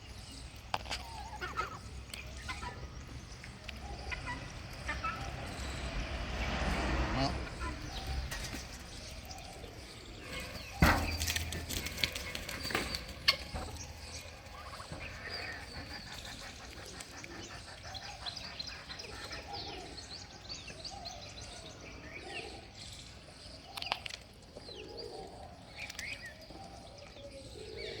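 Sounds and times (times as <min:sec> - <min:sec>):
fowl calls: 0:00.8 - 0:19.9.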